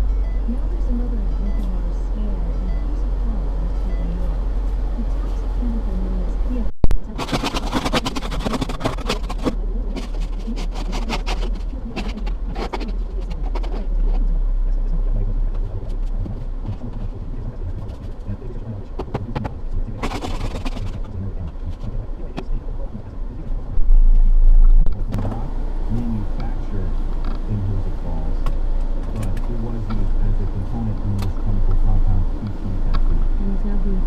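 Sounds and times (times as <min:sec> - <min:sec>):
car engine and road noise: 0:00.0 - 0:34.0
sharp ticks and clicks: 0:18.9 - 0:21.9.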